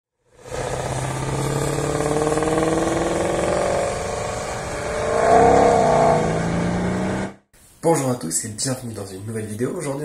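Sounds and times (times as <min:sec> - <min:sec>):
sports car engine accelerating: 0:00.4 - 0:07.4.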